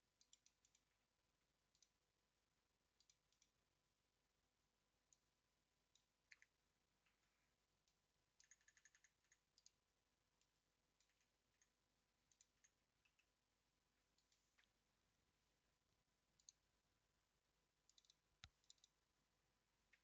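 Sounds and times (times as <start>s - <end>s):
computer keyboard typing: 0.2s - 0.9s, 8.4s - 9.8s, 11.0s - 13.3s, 17.9s - 19.0s.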